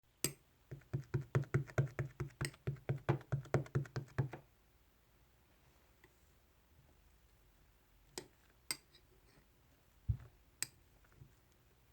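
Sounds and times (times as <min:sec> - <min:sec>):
rapid dull knocking: 0:00.7 - 0:04.4.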